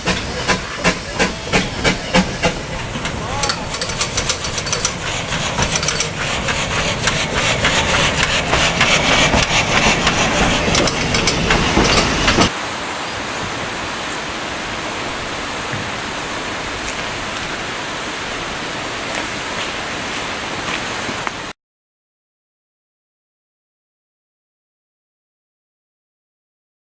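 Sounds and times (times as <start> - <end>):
steam locomotive chuffing: 0.0 - 20.5
steam hissing: 0.0 - 21.3.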